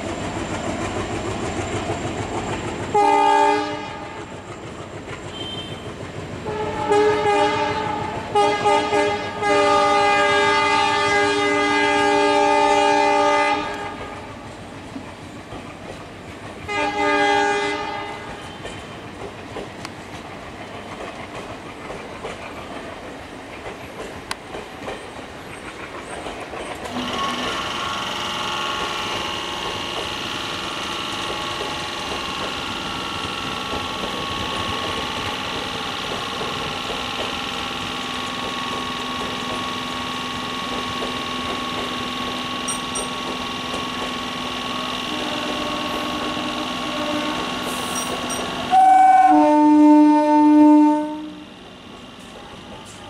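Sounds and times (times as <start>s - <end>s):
passenger coaches rolling past: 0.0s - 53.0s
train horn blast: 2.9s - 4.2s, 5.3s - 5.9s, 6.5s - 14.3s, 16.7s - 18.7s, 26.9s - 29.4s, 44.6s - 51.6s
steady whining hum: 26.9s - 53.0s.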